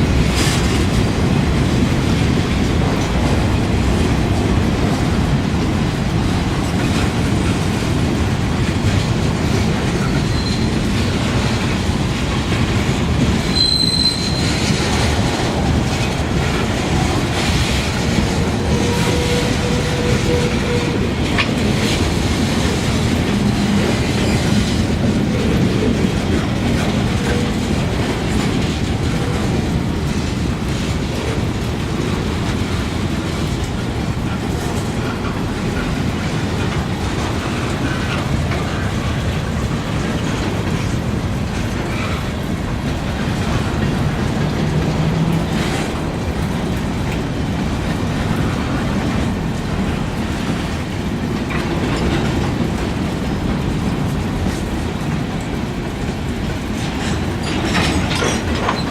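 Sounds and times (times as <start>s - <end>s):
train cars rumbling on rails: 0.0s - 58.9s
wheel squeal: 10.1s - 10.8s, 13.5s - 14.7s.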